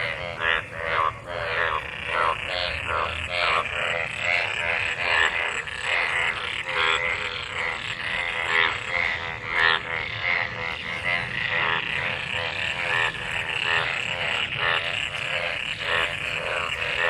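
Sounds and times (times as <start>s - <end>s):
frogs croaking in chorus: 0.0s - 17.0s.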